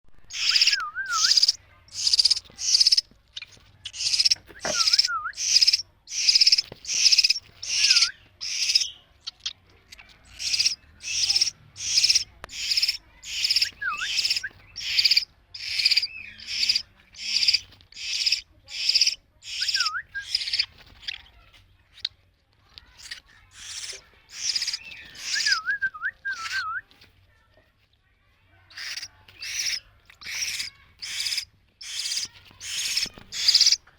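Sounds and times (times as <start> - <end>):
chick harsh begging calls: 0.2 - 3.0, 4.0 - 8.9, 10.2 - 20.7, 23.5 - 25.6, 28.7 - 33.8
short wavering whistles: 0.4 - 1.6, 25.2 - 26.8.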